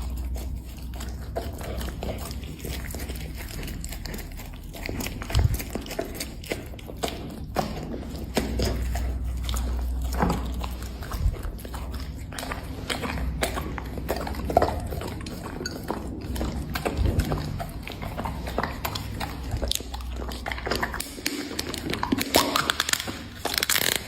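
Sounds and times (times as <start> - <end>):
dog chewing and crunching: 0.0 - 24.0.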